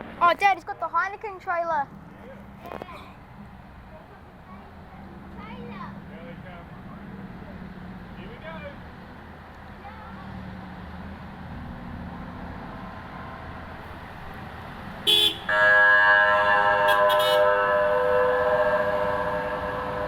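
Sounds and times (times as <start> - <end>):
rumble of passing trucks: 0.0 - 20.0
truck horn: 15.0 - 20.0.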